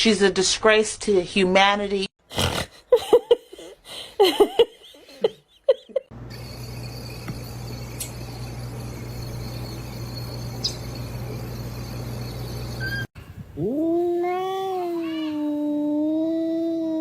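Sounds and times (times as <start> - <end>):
steady hum with high whine: 6.2 - 13.1
cat yowling: 13.6 - 17.0.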